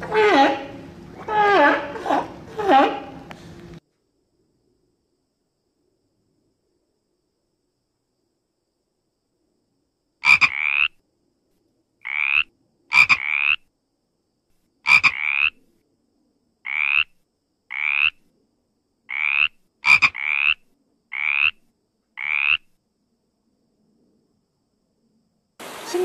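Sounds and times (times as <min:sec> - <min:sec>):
frog croaking: 0:10.2 - 0:11.0, 0:12.0 - 0:13.7, 0:14.8 - 0:15.6, 0:16.6 - 0:18.2, 0:19.1 - 0:22.8.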